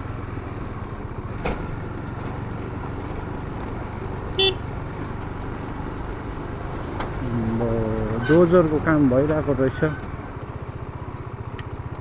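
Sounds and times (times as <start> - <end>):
motorcycle engine and road rumble: 0.0 - 12.0
motorcycle horn toot: 4.4 - 4.6.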